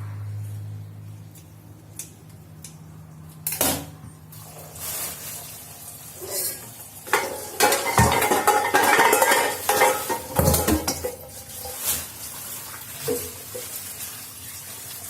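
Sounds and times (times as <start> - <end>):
rustling or splashing: 4.3 - 15.0
dishware knock: 7.2 - 11.1.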